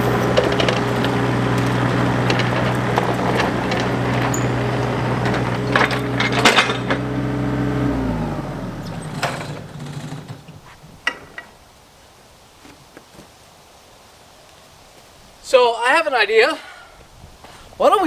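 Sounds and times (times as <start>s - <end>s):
sharp metallic knocks: 0.0s - 7.6s
engine running: 0.0s - 10.8s.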